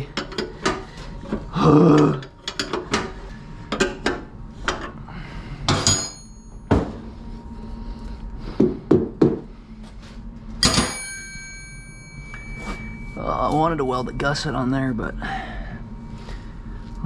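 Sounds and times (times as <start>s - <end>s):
metal tools clanking on steel: 2.0s - 3.1s, 5.7s - 6.6s, 10.6s - 14.4s.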